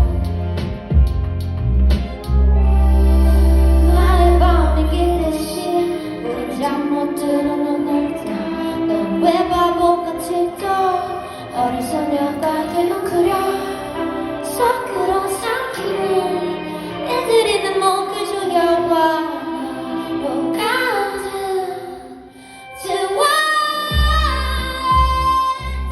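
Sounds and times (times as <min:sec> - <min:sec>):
person singing live: 0:00.0 - 0:01.2, 0:02.0 - 0:25.9
instrumental backing music: 0:00.0 - 0:25.9.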